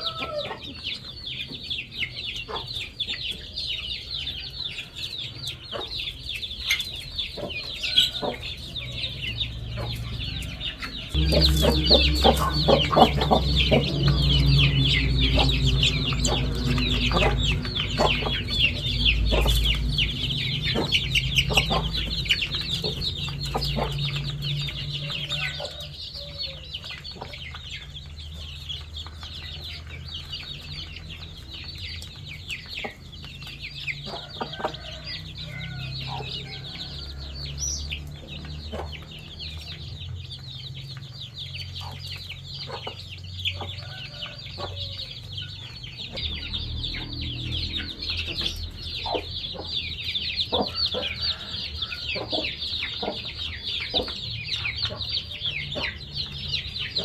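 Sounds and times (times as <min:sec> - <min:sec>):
chicks peeping: 0:00.0 - 0:57.0
low steady hum: 0:11.1 - 0:22.2.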